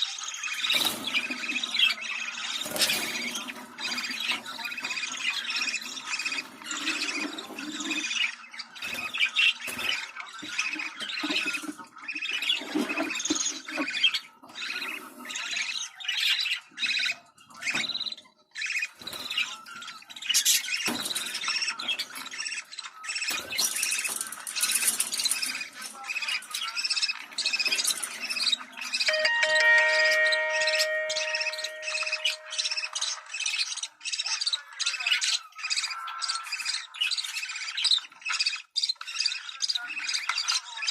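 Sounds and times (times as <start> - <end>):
chime-like musical tones: 29.1 - 33.0.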